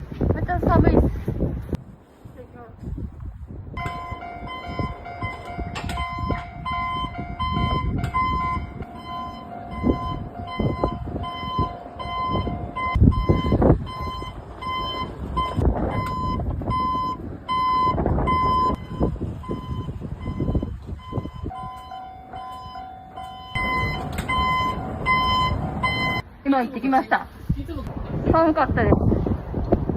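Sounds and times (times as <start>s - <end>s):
rail vehicle rumbling on track: 0.0s - 29.9s
electronic warning beeper: 3.8s - 26.2s
steady tone: 3.8s - 26.4s.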